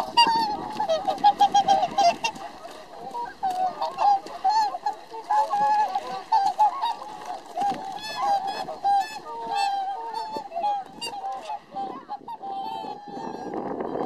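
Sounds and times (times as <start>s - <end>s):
swans honking: 0.0s - 14.0s.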